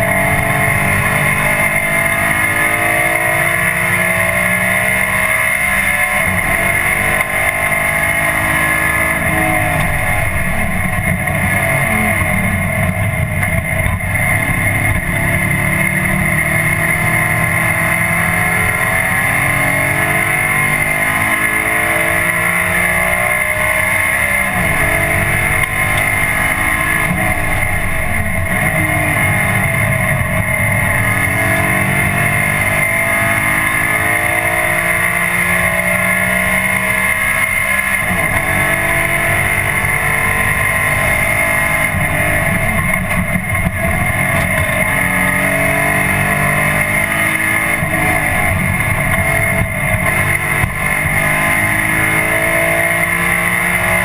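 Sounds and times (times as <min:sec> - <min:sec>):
race car engine revving: 0:00.0 - 0:54.0
steady high whine: 0:00.0 - 0:54.0.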